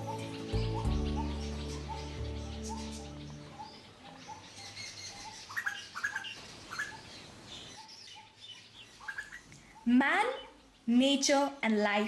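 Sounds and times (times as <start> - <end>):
background music: 0.0 - 4.0
bird calling low tuk note: 0.0 - 5.4
higher bird chirps: 0.0 - 10.8.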